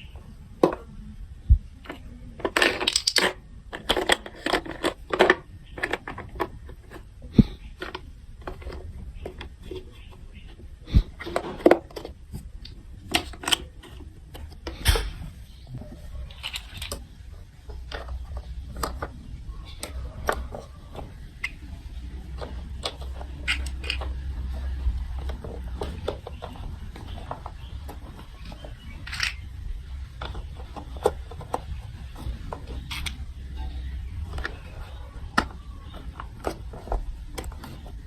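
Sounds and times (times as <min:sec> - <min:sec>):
plastic pieces clicking and tapping: 0:01.8 - 0:15.1, 0:16.3 - 0:38.0
low steady rumble: 0:11.9 - 0:38.0.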